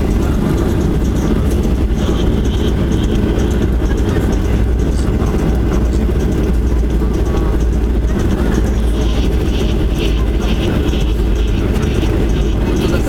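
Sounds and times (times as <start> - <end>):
low rumble of aircraft engines: 0.0 - 13.0.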